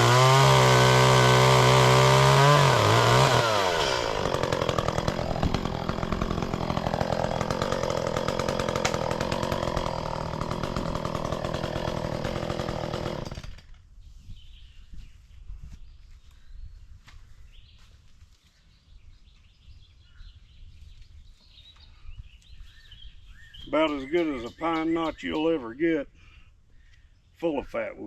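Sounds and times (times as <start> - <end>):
chainsaw cutting wood: 0.0 - 13.8.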